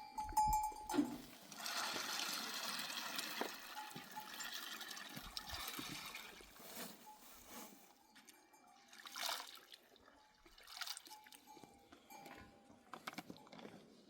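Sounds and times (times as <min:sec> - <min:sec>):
water trickling: 0:00.3 - 0:06.6.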